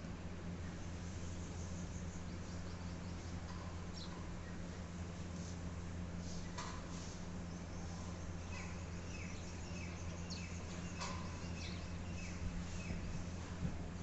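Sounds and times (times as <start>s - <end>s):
steady low hum: 0.0s - 14.0s
birds chirping: 0.4s - 14.0s
sharp bird calls: 7.4s - 13.2s.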